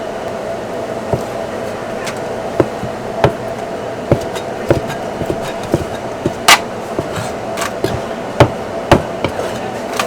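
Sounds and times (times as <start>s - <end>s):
steady hum: 0.0s - 10.0s
cleaver chopping on cutting board: 2.6s - 3.4s, 4.1s - 9.5s.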